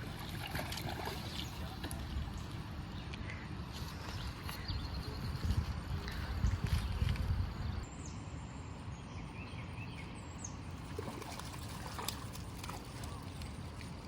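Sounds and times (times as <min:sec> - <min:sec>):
wind on microphone: 0:03.9 - 0:07.9.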